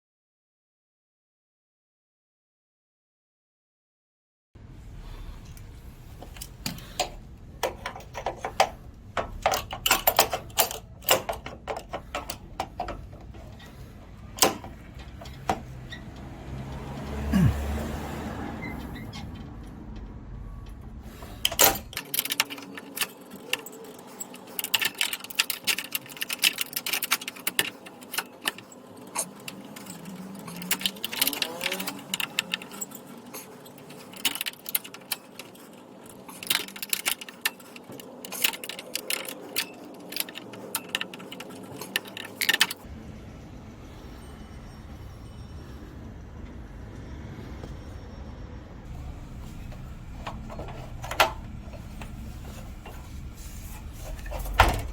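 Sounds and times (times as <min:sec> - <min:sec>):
metallic clicks of hand tools: 0:21.4 - 0:42.9.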